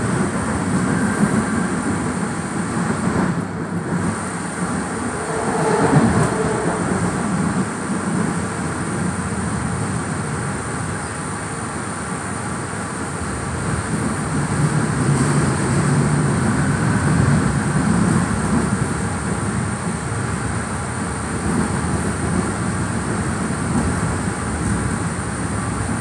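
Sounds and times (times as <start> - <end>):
train wheels rolling on rails: 0.0 - 26.0.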